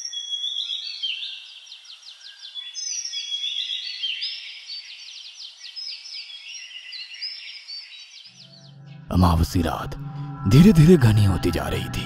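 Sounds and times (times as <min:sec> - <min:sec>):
small birds chirping: 0:00.0 - 0:09.4.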